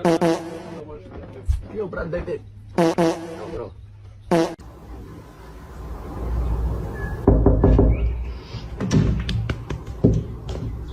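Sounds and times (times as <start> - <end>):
knocks and thumps: 7.2 - 8.1, 8.7 - 10.9.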